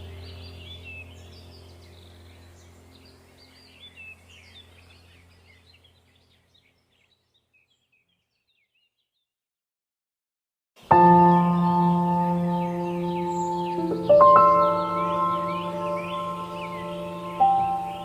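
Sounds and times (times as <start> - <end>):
low steady hum: 0.0 - 7.0, 10.8 - 18.0
small birds chirping: 0.0 - 9.4, 10.8 - 18.0.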